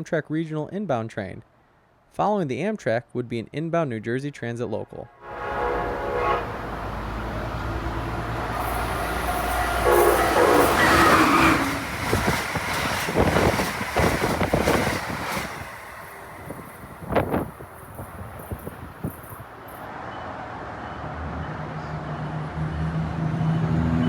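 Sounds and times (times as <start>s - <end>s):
train horn: 5.1s - 12.0s
train wheels clicking over rail joints: 7.8s - 19.8s.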